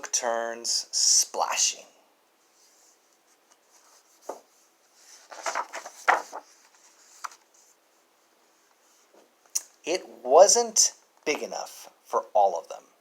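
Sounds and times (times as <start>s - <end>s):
paper pages rustling: 2.5s - 7.8s.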